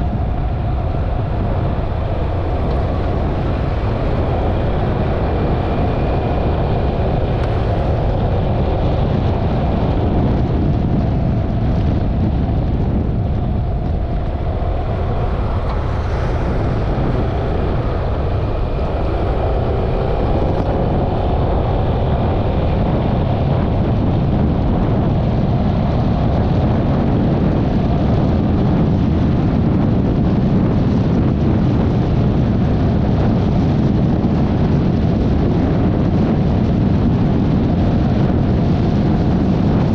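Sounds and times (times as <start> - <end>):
wind rush over microphone: 0.0 - 39.9.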